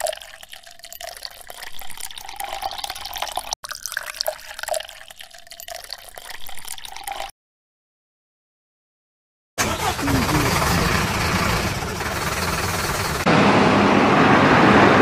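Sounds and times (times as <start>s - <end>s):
water pouring into plastic: 0.0s - 7.3s.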